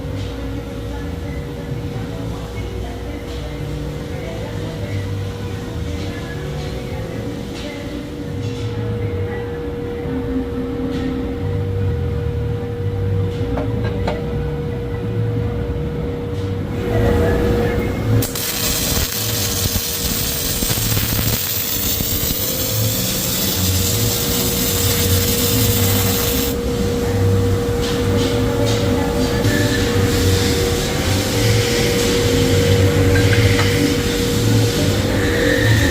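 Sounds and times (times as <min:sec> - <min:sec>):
machine hum: 0:03.0 - 0:35.9
welding arc crackling and hissing: 0:18.2 - 0:28.0, 0:29.4 - 0:35.9.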